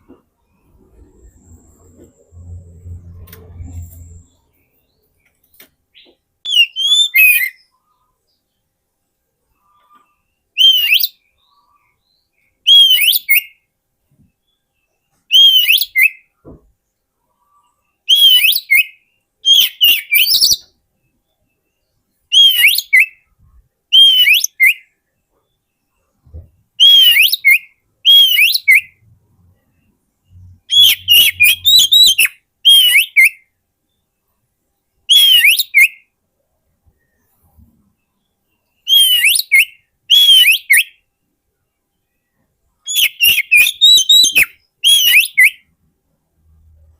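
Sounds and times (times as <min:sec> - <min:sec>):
bird singing whistled phrases: 0:06.5 - 0:07.7, 0:10.6 - 0:11.3, 0:12.6 - 0:13.6, 0:15.3 - 0:16.3, 0:18.1 - 0:20.8, 0:22.3 - 0:23.3, 0:23.9 - 0:24.9, 0:26.8 - 0:29.0, 0:30.4 - 0:33.4, 0:35.1 - 0:36.1, 0:38.8 - 0:41.0, 0:42.9 - 0:45.7.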